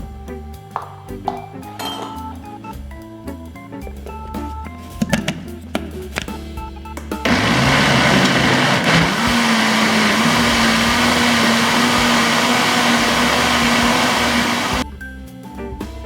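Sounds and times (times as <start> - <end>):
blender whirring: 7.3 - 14.8.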